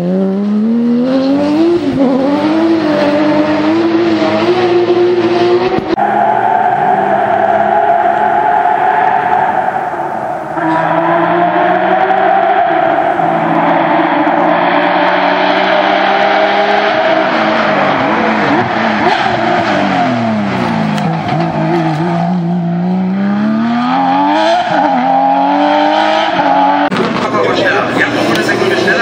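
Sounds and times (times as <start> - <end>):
rally car engine revving: 0.0 - 29.0.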